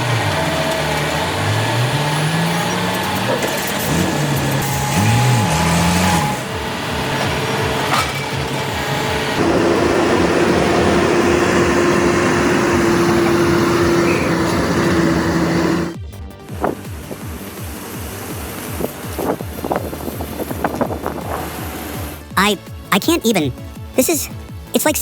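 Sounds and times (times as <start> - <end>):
diesel engine and hydraulics: 0.0 - 22.3
steady whine: 9.1 - 16.0.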